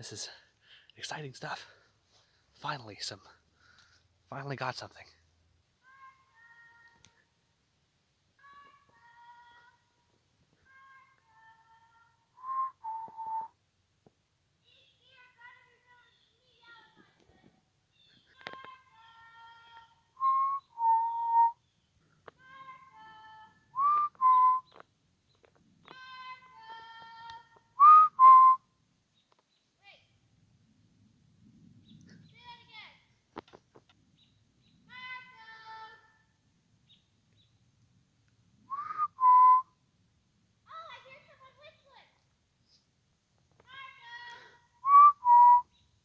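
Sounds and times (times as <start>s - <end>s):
person whistling: 12.4s - 13.5s, 20.2s - 21.6s, 23.8s - 24.7s, 27.8s - 28.6s, 38.7s - 39.6s, 44.8s - 45.6s
person whistling two-note signal: 20.2s - 21.5s, 23.8s - 24.6s, 44.9s - 45.6s.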